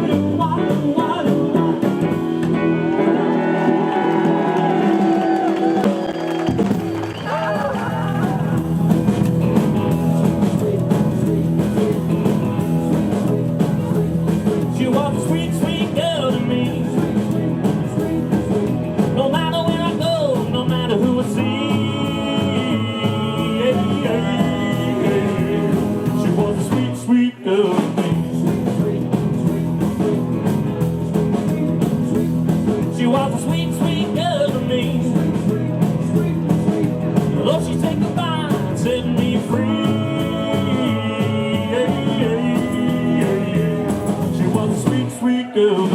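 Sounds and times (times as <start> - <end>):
live rockabilly band playing: 0.0 - 45.9.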